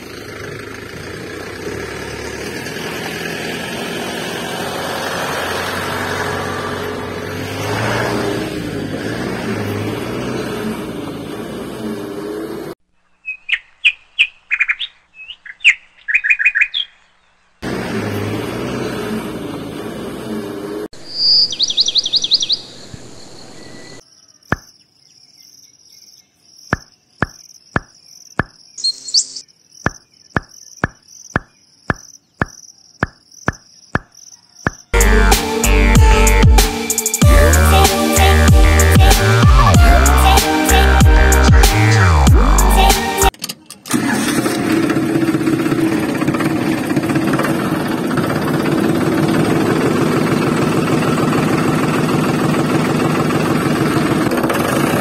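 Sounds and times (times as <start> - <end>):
engine with wavering pitch: 0.0 - 12.8, 17.6 - 21.4, 35.0 - 43.3, 43.9 - 55.0
bird chirps: 12.9 - 17.6, 21.0 - 35.0
fast trilling chirp: 13.2 - 17.1, 21.0 - 24.8, 25.4 - 35.0.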